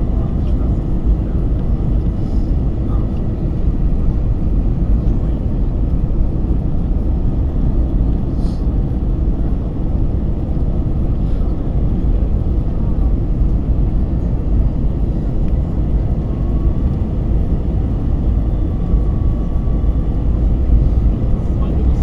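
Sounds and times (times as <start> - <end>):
airplane engines and airflow rumble: 0.0 - 22.0.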